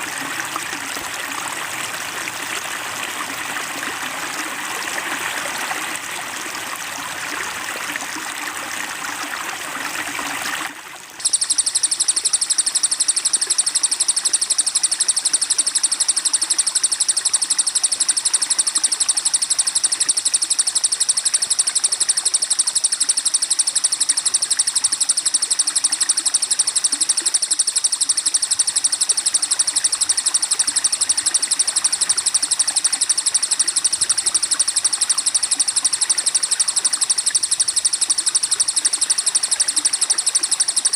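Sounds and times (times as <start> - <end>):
flowing water: 0.0 - 40.9
songbird trill: 11.2 - 40.9.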